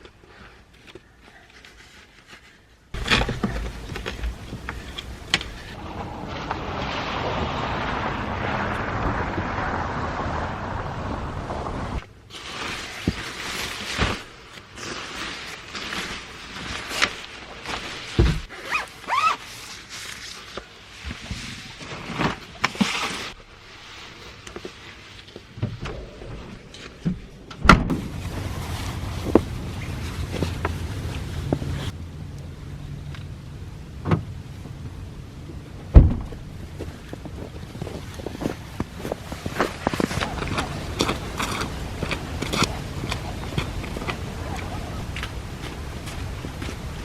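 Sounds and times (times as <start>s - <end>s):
wind rushing over microphone: 3.7s - 12.1s.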